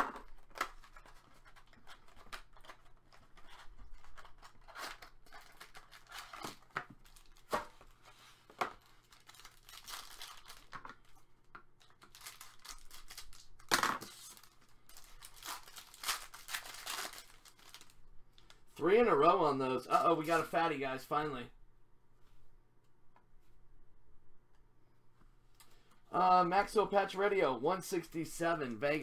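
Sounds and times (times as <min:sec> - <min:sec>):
foil wrapper rustling: 0:00.4 - 0:07.6, 0:08.8 - 0:10.8, 0:11.8 - 0:18.0
foil pack tearing: 0:14.1 - 0:17.9.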